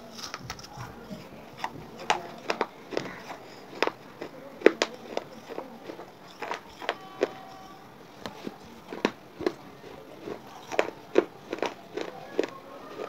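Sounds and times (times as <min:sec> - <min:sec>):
person chewing crunchy chips: 0:00.1 - 0:13.0.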